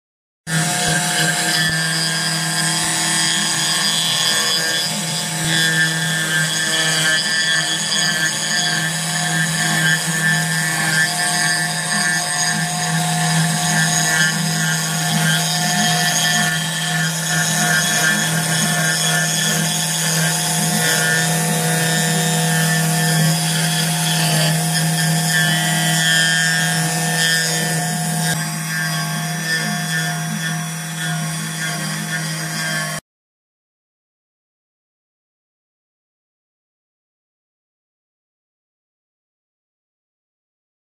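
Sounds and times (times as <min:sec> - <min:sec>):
milling machine motors whining: 0:00.5 - 0:33.0.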